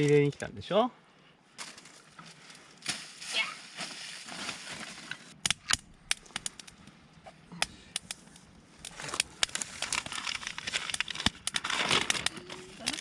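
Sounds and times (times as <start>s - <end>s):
campfire crackling and popping: 5.3s - 13.0s.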